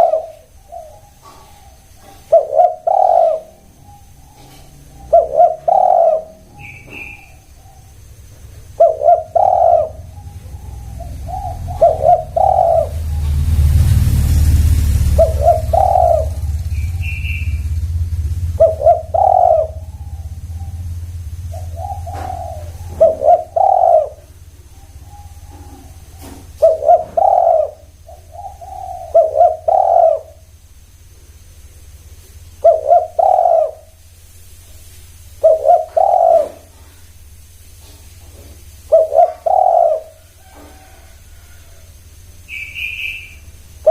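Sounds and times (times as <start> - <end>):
dove cooing: 0.0 - 30.6, 32.5 - 34.0, 35.3 - 37.2, 37.8 - 43.9
low rumble: 6.2 - 26.6.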